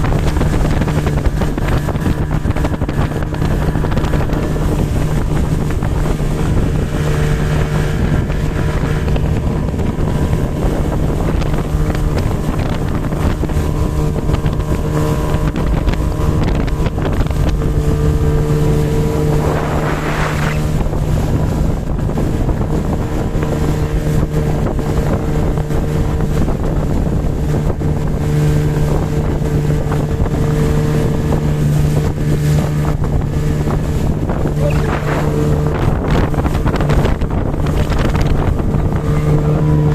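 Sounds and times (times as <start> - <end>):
motorboat engine running: 0.0 - 39.9
wind buffeting microphone: 0.0 - 39.9.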